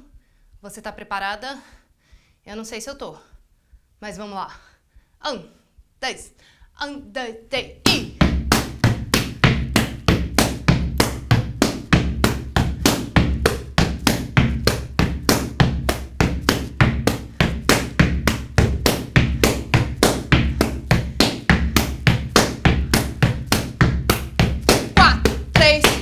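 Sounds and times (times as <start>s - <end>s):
hands slapping rubber boots: 7.8s - 26.0s.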